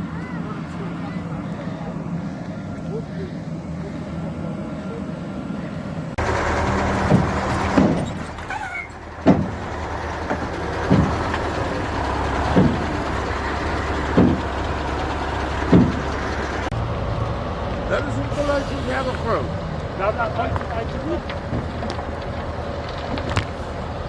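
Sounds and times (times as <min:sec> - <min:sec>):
heavy machinery engine hum: 0:00.0 - 0:24.0
sharp thuds: 0:06.6 - 0:08.5, 0:09.2 - 0:14.8, 0:15.6 - 0:16.7.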